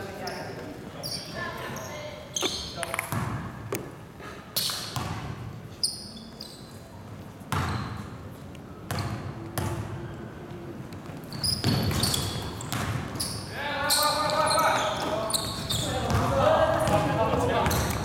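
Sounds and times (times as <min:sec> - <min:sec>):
shoe squeaks: 0:00.1 - 0:03.1, 0:04.5 - 0:05.1, 0:05.7 - 0:07.0, 0:07.6 - 0:08.3, 0:11.2 - 0:16.3
basketball bouncing on court floor: 0:02.4 - 0:03.9, 0:04.6 - 0:05.4, 0:07.5 - 0:08.0, 0:11.4 - 0:13.2, 0:15.4 - 0:18.0.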